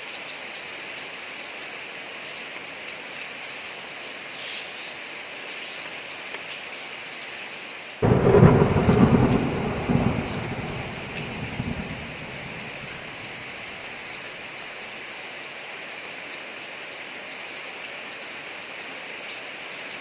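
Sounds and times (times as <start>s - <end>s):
rain falling on a street: 0.0s - 20.0s
thunder rumble: 8.0s - 14.2s.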